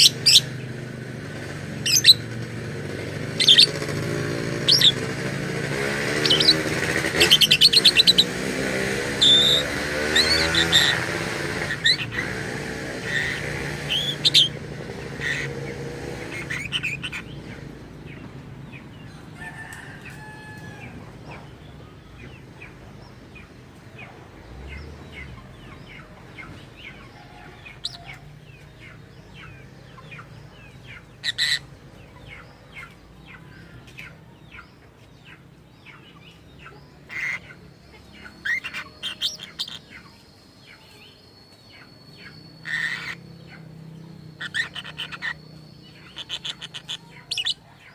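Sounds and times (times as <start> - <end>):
lovebird chirping: 0.0 - 0.8, 1.8 - 2.3, 3.3 - 5.1, 5.7 - 12.3, 13.0 - 15.6, 36.0 - 47.9.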